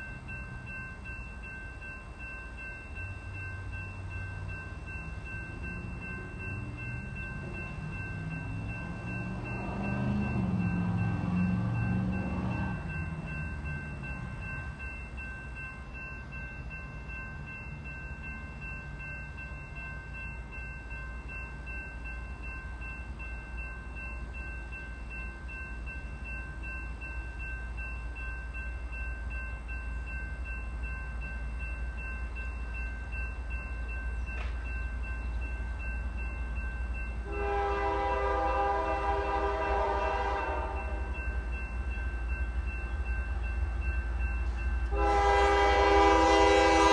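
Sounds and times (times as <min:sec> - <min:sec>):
train horn blast: 0:37.2 - 0:41.2, 0:44.9 - 0:46.9.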